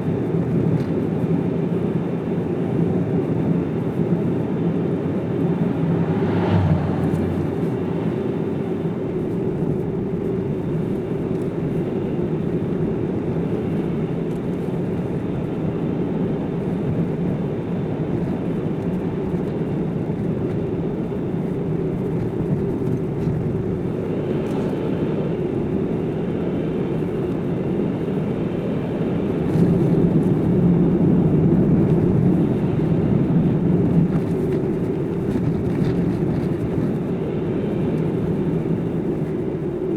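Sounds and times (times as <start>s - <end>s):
car road and engine noise: 0.0s - 39.9s.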